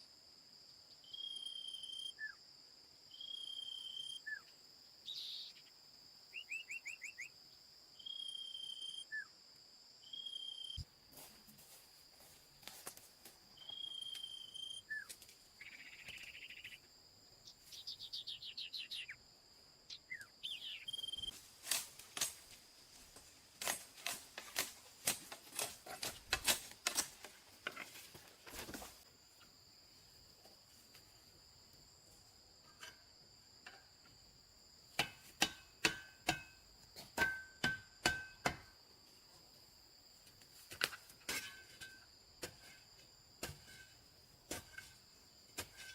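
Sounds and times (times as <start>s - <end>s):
crickets and insects droning: 0.0s - 45.9s
bird calls: 17.5s - 19.2s, 19.9s - 21.3s.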